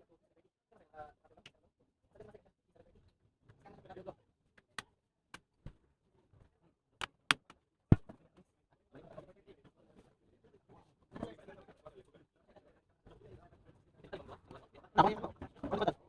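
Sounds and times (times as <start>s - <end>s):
sharp clicks and taps: 7.0s - 8.1s.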